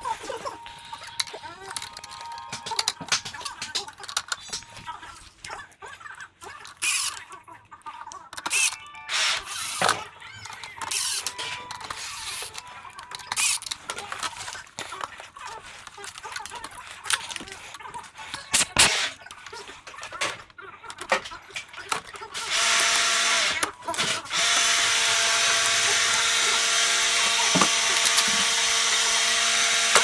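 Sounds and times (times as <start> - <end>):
plastic parts clicking and scraping: 0.0 - 30.0.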